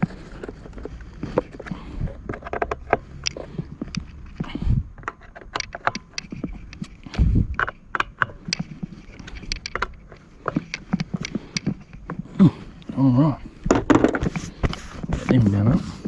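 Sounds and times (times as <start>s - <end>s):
hard plastic parts clicking: 0.0s - 12.2s
tool being handled: 0.0s - 12.3s.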